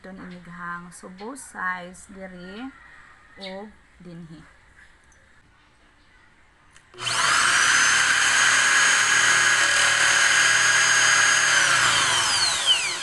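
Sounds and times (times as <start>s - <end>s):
power drill whine: 7.0s - 13.0s.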